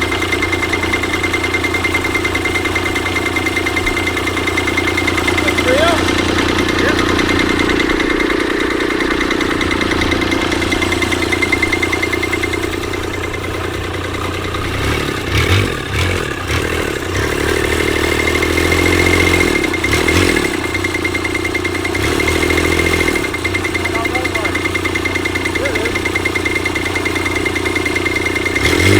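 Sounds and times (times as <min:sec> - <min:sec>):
deep uneven rumble: 0:00.0 - 0:16.8
stationary engine running: 0:00.0 - 0:28.9.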